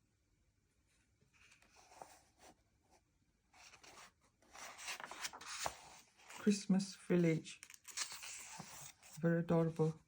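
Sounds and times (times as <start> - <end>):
paper pages turning: 1.4 - 2.6, 3.6 - 9.9.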